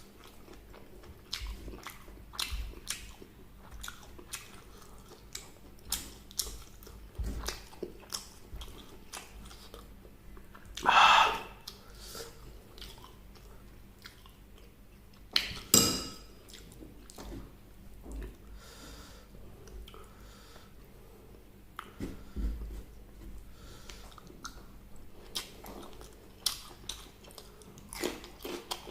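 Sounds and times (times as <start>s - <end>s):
chewing crunchy food: 0.0s - 10.9s, 11.6s - 15.7s, 16.4s - 17.5s, 23.4s - 28.9s.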